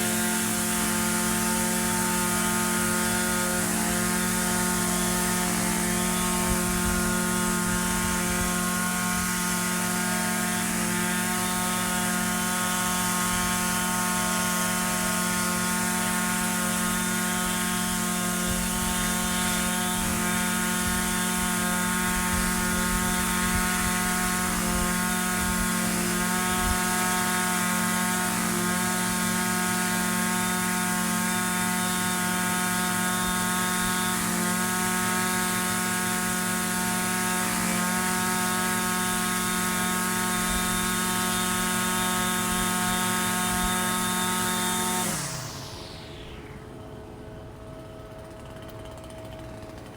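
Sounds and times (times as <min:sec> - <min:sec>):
string trimmer engine running: 0:00.0 - 0:49.9.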